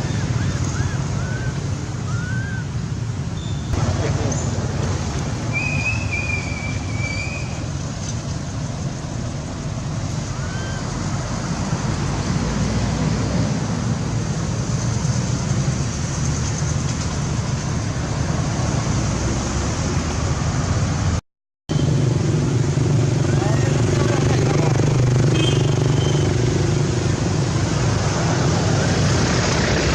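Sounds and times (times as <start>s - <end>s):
outdoor background rumble: 0.0s - 29.9s.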